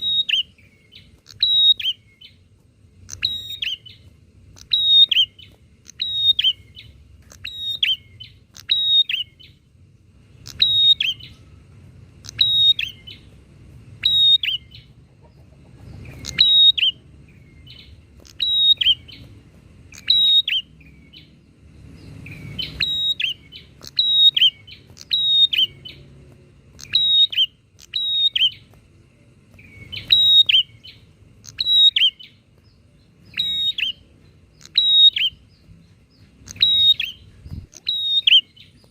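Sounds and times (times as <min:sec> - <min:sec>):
birds chirping calls: 0:00.0 - 0:38.9.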